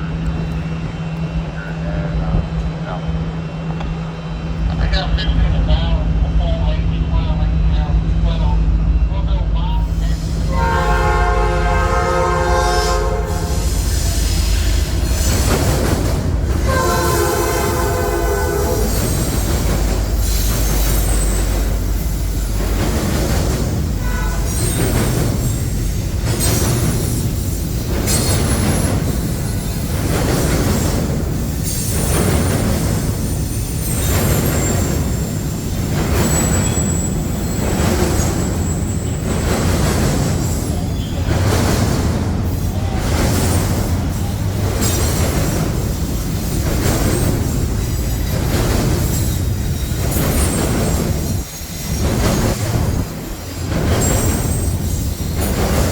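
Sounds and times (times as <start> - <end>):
train cars rolling past: 0.0 - 55.9
train horn chord: 10.5 - 13.6, 16.6 - 19.0
high wheel squeal: 16.6 - 22.6, 24.0 - 30.0, 31.6 - 39.6, 40.4 - 41.3.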